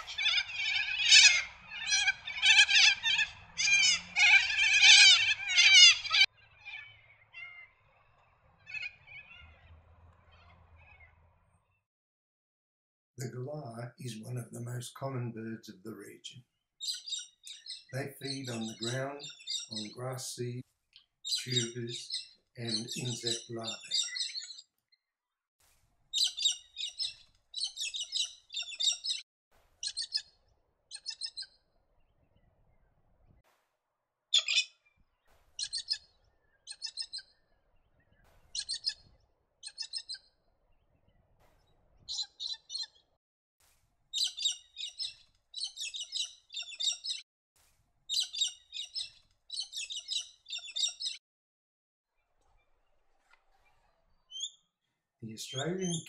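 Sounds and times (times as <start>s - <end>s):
galahs chattering calls: 0.0s - 7.7s, 16.8s - 20.6s, 21.3s - 24.6s, 26.2s - 29.2s, 34.4s - 34.7s, 35.6s - 36.0s, 36.7s - 37.2s, 38.6s - 39.0s, 44.2s - 47.2s, 48.1s - 51.2s, 55.3s - 56.0s.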